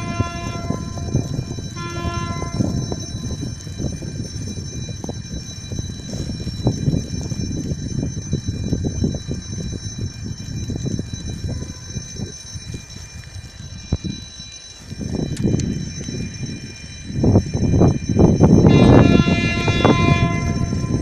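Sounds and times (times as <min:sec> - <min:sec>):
train rumbling past: 0:18.4 - 0:21.0.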